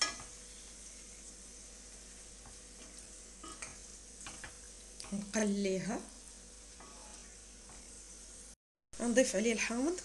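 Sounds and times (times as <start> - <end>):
wooden spoon stirring: 0.0 - 5.4, 6.6 - 8.0
food frying in hot oil: 0.0 - 10.0.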